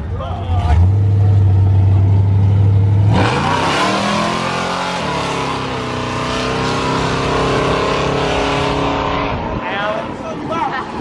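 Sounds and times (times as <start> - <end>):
vehicle engine accelerating hard: 0.6 - 9.6.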